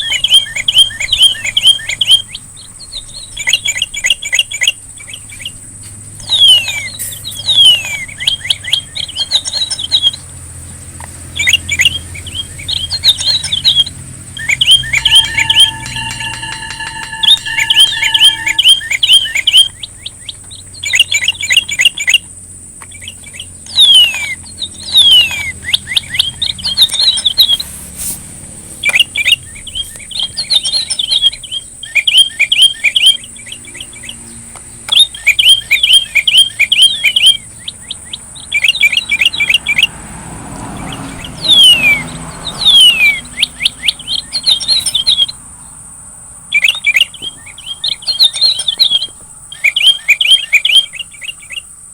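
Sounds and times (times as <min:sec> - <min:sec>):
songbird chirping and whistling: 0:00.0 - 0:51.9
steady thin high tone: 0:14.4 - 0:19.6.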